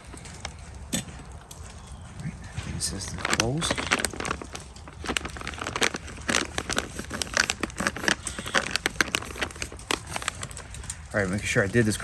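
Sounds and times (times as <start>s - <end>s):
foil pouch crinkling: 2.8s - 12.0s.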